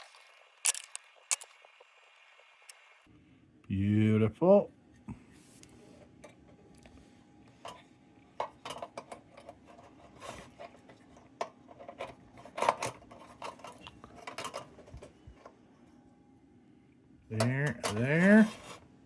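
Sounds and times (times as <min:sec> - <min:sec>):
metal lantern parts clinking: 0:00.6 - 0:01.5, 0:11.7 - 0:15.0, 0:17.4 - 0:18.6.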